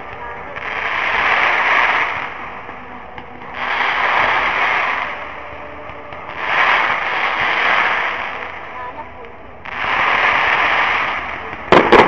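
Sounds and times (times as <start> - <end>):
fireworks crackling: 0.0 - 12.0
sharp firework pop: 11.7 - 12.0.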